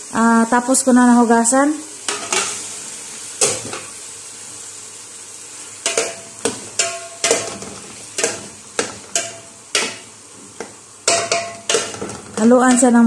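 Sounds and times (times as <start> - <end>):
shrimp sizzling in hot oil: 0.0 - 13.0
spoon clinking against metal pot: 6.8 - 10.0, 11.1 - 12.8.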